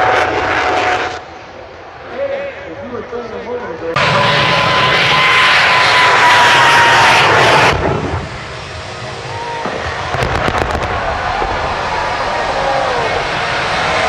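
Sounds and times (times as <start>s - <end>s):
jet engine roaring: 0.0s - 14.0s
sharp crackling: 9.8s - 14.0s.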